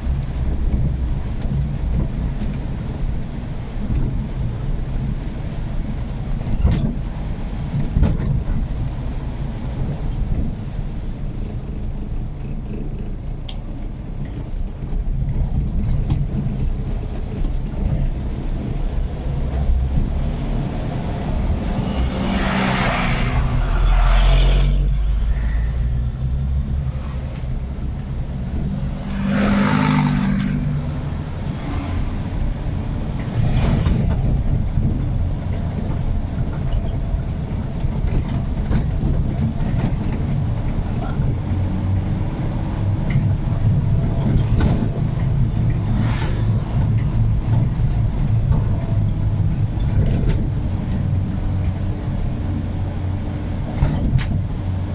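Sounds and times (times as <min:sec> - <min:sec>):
motorcycle engine and road rumble: 0:00.0 - 0:54.9
rushing swells: 0:18.4 - 0:36.3.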